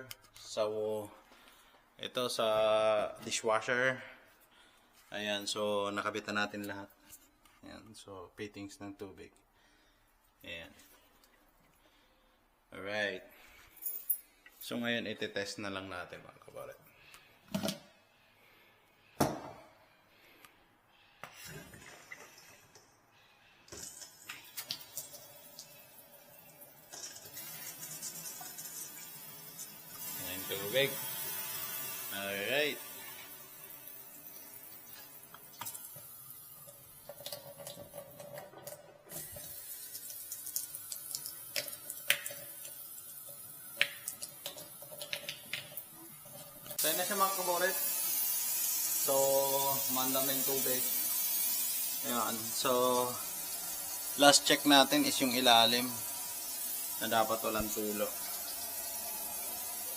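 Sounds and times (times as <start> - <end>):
water running into sink: 23.7 - 59.9.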